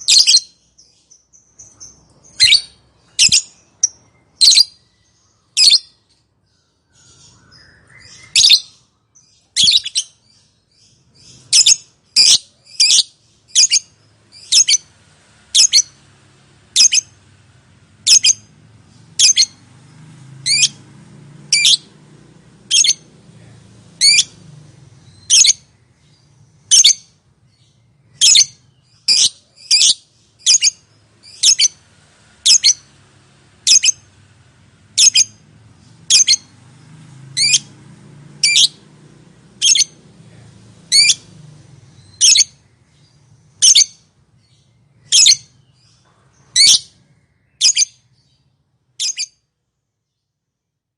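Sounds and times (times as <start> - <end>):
lovebird squawking: 1.8 - 4.8, 15.5 - 16.0, 16.8 - 17.2, 18.0 - 18.6, 20.4 - 20.8, 22.7 - 23.1, 24.0 - 24.4, 25.1 - 25.7, 28.2 - 31.8, 32.4 - 32.9, 33.6 - 34.1, 35.0 - 35.4, 36.0 - 36.5, 37.4 - 37.7, 38.4 - 38.8, 39.6 - 40.0, 40.9 - 41.3, 42.0 - 42.6, 43.6 - 44.0, 45.1 - 45.5, 46.6 - 46.9, 47.6 - 48.0, 49.0 - 49.3.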